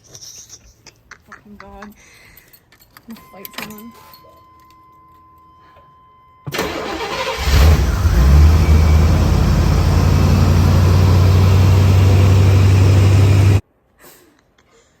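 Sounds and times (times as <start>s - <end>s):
car engine cranking and idling: 6.5s - 13.6s.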